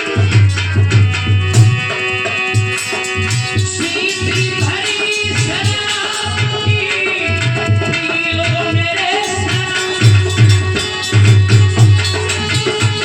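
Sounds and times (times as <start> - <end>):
wavering melody: 0.0 - 6.6, 9.2 - 13.0
hand drum rhythm: 0.0 - 13.0.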